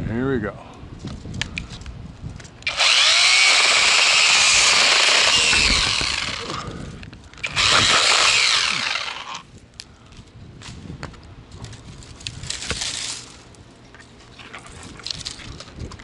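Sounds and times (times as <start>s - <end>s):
cordless mini chainsaw running: 2.6s - 6.8s, 7.4s - 9.4s.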